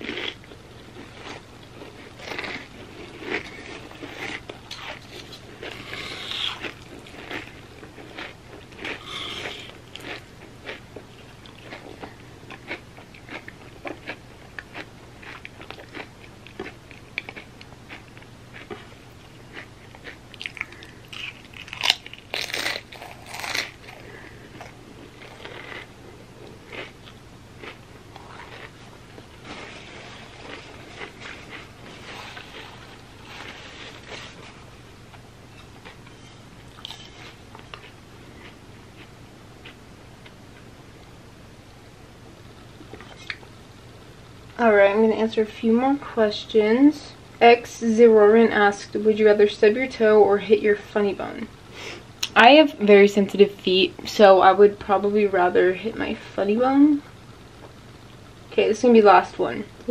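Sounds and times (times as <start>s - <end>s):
person crunching chips: 0.0s - 10.8s, 19.5s - 28.8s, 29.4s - 34.6s, 36.7s - 38.6s
wet mouth sounds: 8.9s - 9.8s.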